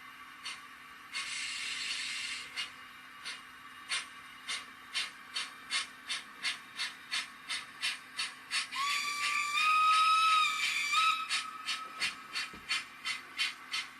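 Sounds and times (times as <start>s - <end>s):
model steam locomotive chuffs: 0.0s - 13.9s
steam whistle: 8.8s - 12.0s.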